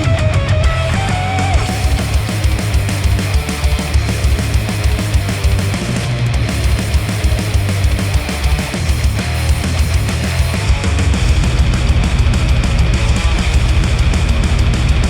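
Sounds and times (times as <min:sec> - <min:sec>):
heavy rock music through headphones: 0:00.0 - 0:15.0.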